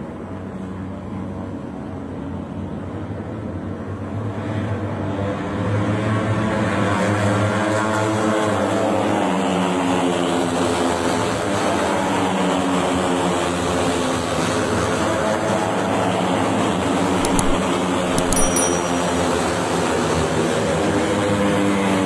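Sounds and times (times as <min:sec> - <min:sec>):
sharp clicks: 0:17.2 - 0:19.2.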